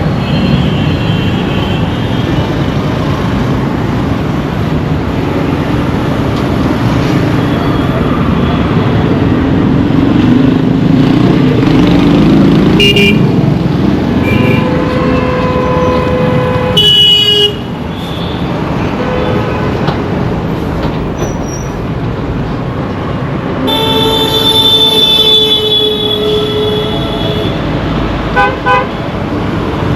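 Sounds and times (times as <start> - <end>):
vehicle engines rumbling: 0.0 - 29.9
horns honking: 12.8 - 13.4, 14.2 - 19.6, 23.7 - 27.7, 28.4 - 29.0.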